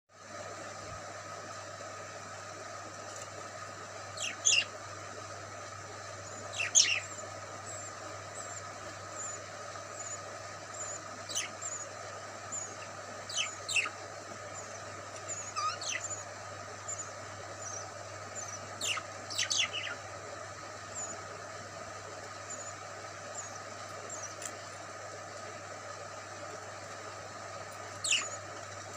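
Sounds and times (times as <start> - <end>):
steady low hum: 0.2 - 28.9
small birds chirping: 3.1 - 28.9
faint high peeps: 14.6 - 20.0.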